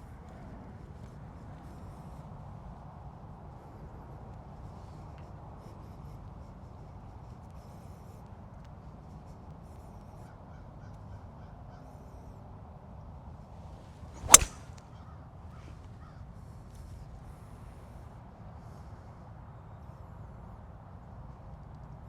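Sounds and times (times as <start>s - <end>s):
golf club striking ball: 14.2s - 14.6s.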